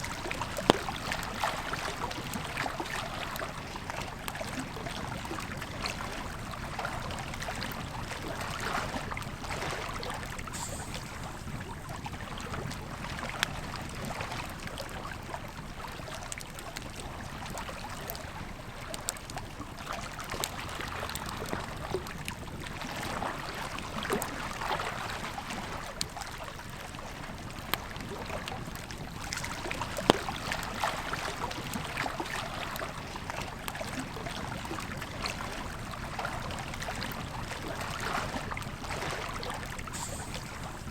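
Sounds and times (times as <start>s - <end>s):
river flowing: 36.2s - 40.9s.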